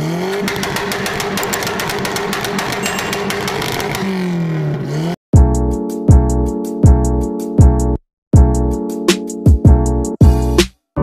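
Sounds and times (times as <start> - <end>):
car engine revving: 0.0 - 5.2
music with heavy beat: 8.4 - 10.7.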